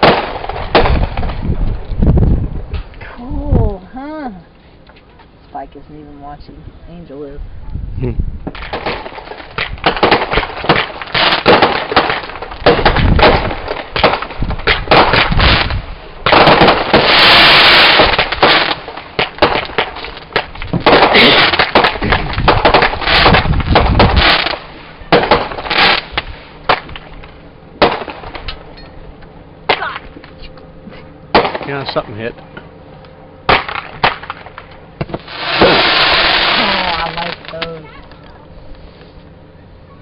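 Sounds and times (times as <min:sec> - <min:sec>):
fireworks bangs and crackles: 0:00.0 - 0:01.8, 0:08.4 - 0:28.6, 0:33.5 - 0:37.7.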